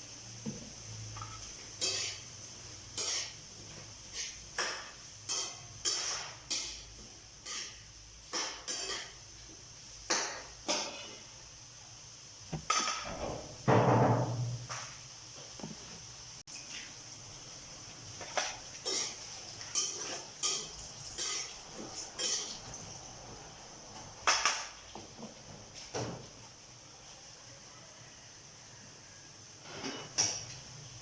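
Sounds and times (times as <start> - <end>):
utensils clinking against cookware: 1.2 - 2.3, 2.9 - 3.4, 4.1 - 9.3, 18.3 - 22.8, 29.6 - 30.5
utensils clattering: 18.8 - 22.7.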